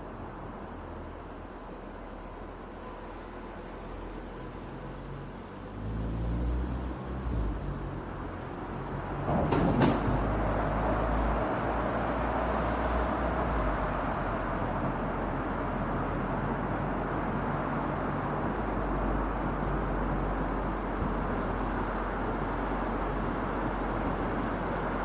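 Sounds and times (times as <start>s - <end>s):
tyre road and wind noise: 0.0s - 25.0s
sharp knocks: 9.3s - 10.4s.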